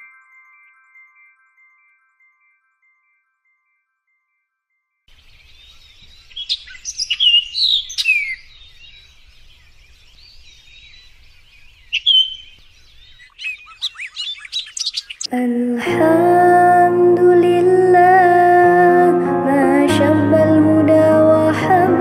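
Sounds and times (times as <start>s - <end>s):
birds chirping: 5.1s - 15.4s
bird whistling: 5.6s - 9.0s, 11.9s - 15.3s.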